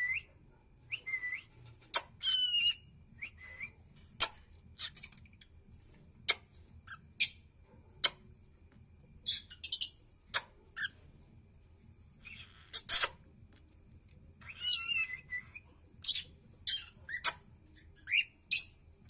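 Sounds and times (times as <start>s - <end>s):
cockatiel chirps and clicks: 12.3s - 13.7s, 14.4s - 18.7s.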